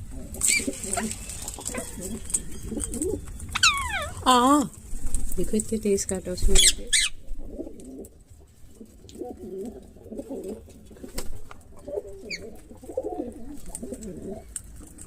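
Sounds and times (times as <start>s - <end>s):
pigeons cooing: 0.0s - 5.3s, 6.6s - 15.0s
high bird chirp: 2.5s - 4.3s.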